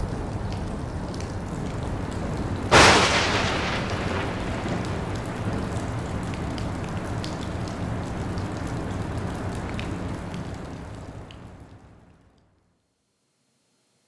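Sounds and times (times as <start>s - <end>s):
rain: 0.0s - 12.8s
loud thunderclap: 2.7s - 6.1s.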